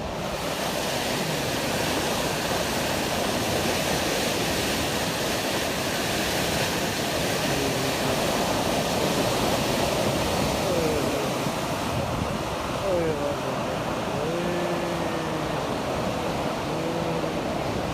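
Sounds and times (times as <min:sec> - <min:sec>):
sea water rushing: 0:00.0 - 0:17.9.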